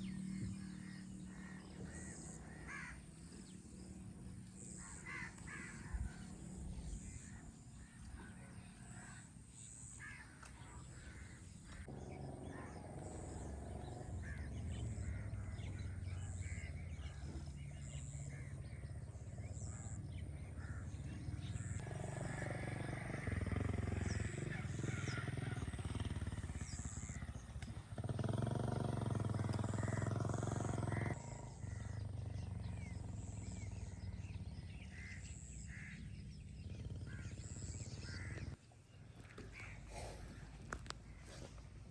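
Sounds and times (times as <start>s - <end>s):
low steady rumble: 0.0s - 41.9s
crows cawing: 0.6s - 3.3s, 4.7s - 6.3s, 7.0s - 17.4s, 19.7s - 26.0s, 34.7s - 36.2s, 37.0s - 38.6s.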